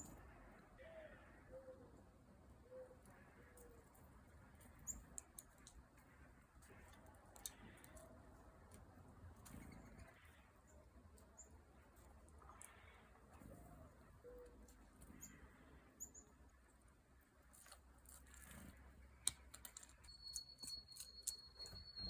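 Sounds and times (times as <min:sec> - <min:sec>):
faint bird chirps: 0:12.4 - 0:16.6, 0:19.1 - 0:22.0.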